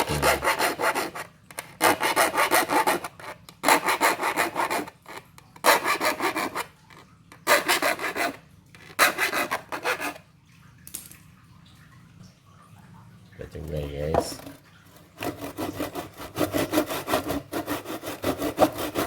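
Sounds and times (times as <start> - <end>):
file rasping on saw teeth: 0.0 - 6.7, 7.4 - 8.4, 9.0 - 10.2, 15.2 - 19.0.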